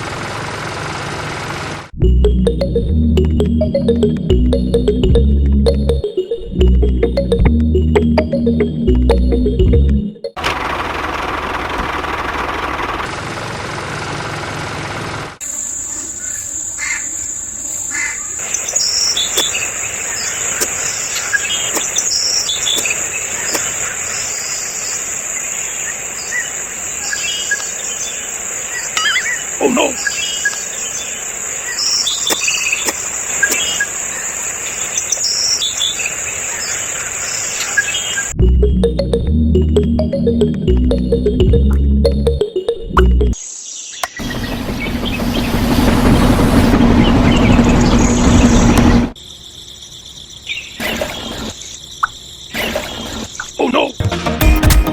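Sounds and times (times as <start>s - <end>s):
crickets trilling: 15.4s - 38.4s, 49.2s - 54.0s
birds chirping: 15.4s - 54.0s.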